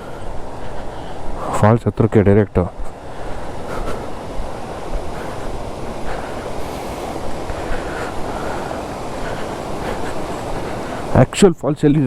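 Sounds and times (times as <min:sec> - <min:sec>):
waterfall rushing: 0:02.7 - 0:11.4.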